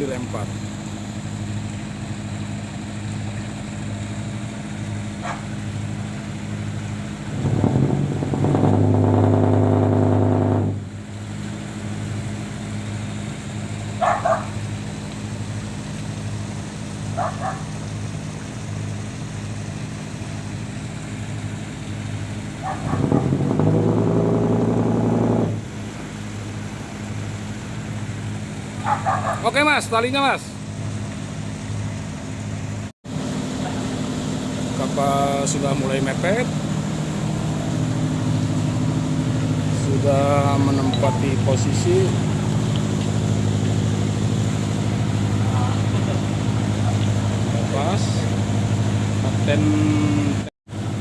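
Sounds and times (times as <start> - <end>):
boat engine chugging: 0.0 - 30.8, 33.4 - 51.0
brief sharp high sounds: 40.7 - 41.5.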